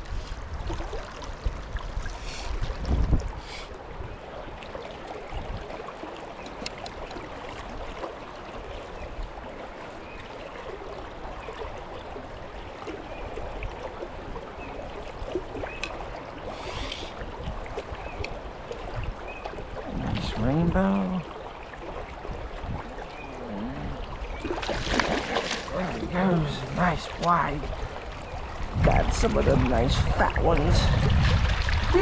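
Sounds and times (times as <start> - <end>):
fast river water rushing: 0.0 - 32.0
faint clicks: 6.4 - 7.2.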